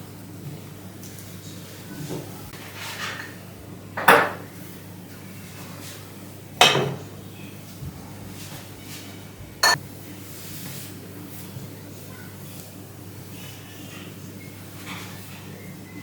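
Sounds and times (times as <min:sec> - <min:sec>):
kitchenware clinking: 0:02.8 - 0:03.4, 0:04.0 - 0:04.5, 0:06.6 - 0:07.1, 0:09.6 - 0:09.8.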